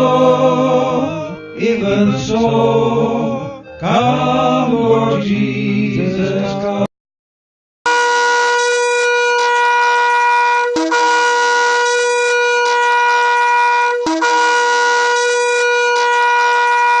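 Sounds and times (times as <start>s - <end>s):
shofar blasts: 7.9s - 17.0s.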